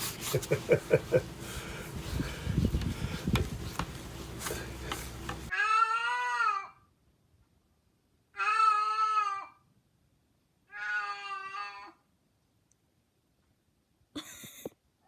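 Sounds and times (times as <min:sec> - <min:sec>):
cat meowing: 0:10.7 - 0:12.0.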